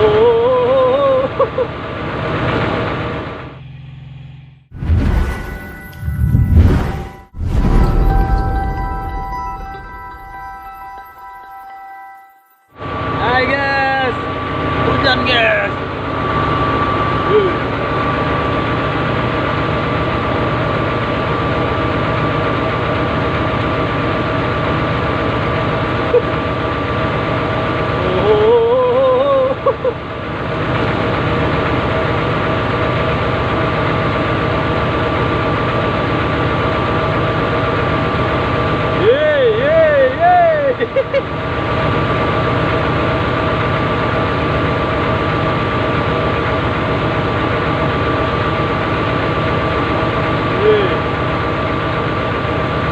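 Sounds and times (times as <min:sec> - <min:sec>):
excavator diesel engine drone: 0:00.0 - 0:12.1, 0:12.8 - 0:52.9
high whine: 0:03.3 - 0:21.6
steady high tone: 0:04.8 - 0:19.2.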